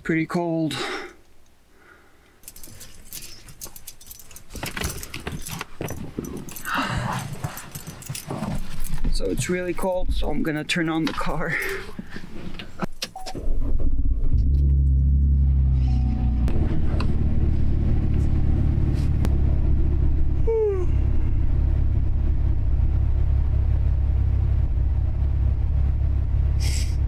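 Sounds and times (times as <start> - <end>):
person yawning: 6.6 - 7.2, 20.4 - 21.2
car engine idling: 13.7 - 27.0.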